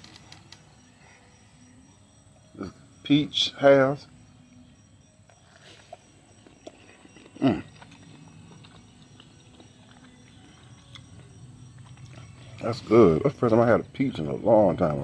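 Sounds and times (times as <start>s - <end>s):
chewing clicks: 5.3s - 12.6s.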